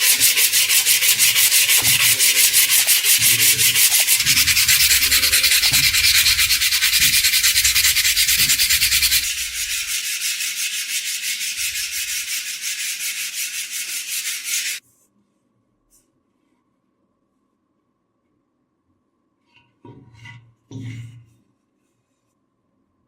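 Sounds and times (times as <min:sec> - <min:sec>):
abrasive scrubbing of rusty steel: 0:00.0 - 0:14.8.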